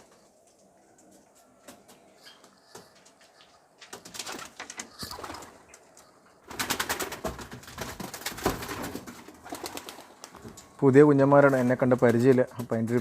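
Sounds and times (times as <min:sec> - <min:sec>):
pigeons clattering and scuffling: 0:00.0 - 0:13.0
pigeons cooing: 0:01.9 - 0:07.2.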